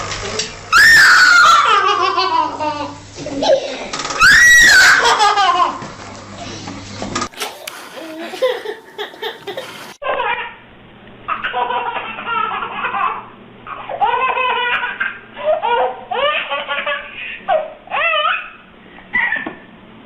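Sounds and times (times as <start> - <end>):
young child laughing: 4.7 - 5.8, 7.9 - 10.6.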